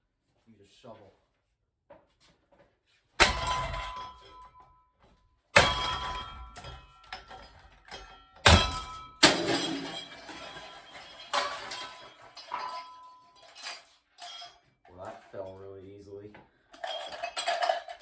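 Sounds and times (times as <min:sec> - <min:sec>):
shovel clanging on metal fan: 0:05.6 - 0:14.6.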